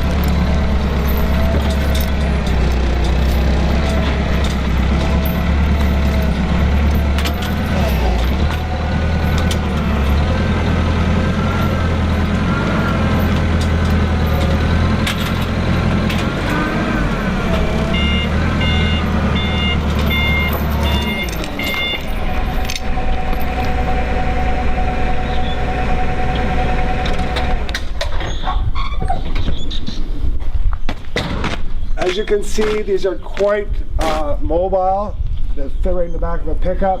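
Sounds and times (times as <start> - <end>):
steady engine hum: 0.0 - 28.2
loading machine engine whine: 0.0 - 28.4
back-up alarm beeping: 17.8 - 27.5.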